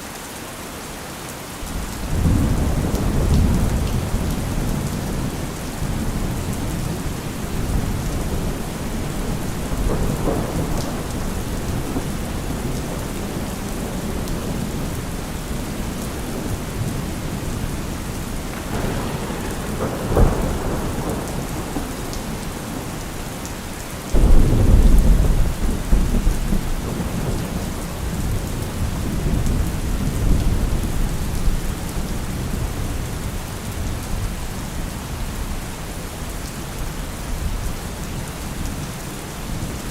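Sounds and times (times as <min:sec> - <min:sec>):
steady rain falling: 0:00.0 - 0:39.9
thunder rumbling: 0:01.6 - 0:35.6
loud thunderclap: 0:01.8 - 0:32.8.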